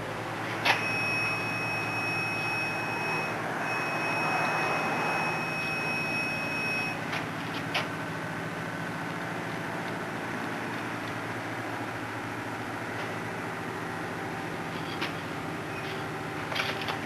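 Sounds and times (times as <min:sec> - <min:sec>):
high-pitched machine whine: 0:00.0 - 0:07.7.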